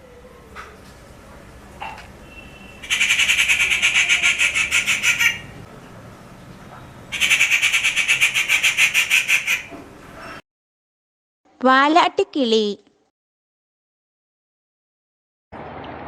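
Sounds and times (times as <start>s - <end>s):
bird harsh rattling call: 2.8s - 5.5s, 7.1s - 9.7s.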